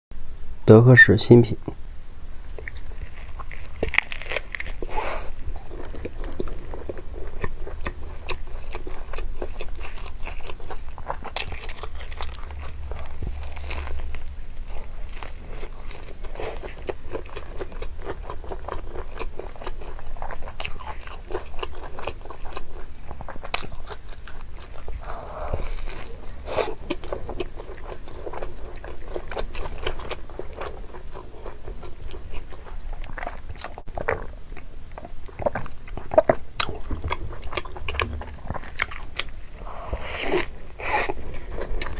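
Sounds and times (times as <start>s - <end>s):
man chewing crunchy food: 1.7s - 41.9s.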